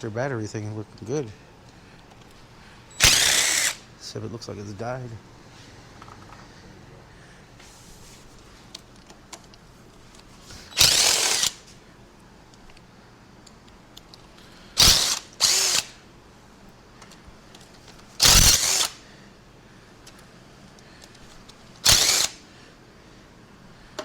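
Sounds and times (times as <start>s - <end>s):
cordless power tool bursts: 2.9s - 3.9s, 10.6s - 11.7s, 14.8s - 16.0s, 18.2s - 19.0s, 21.8s - 22.4s.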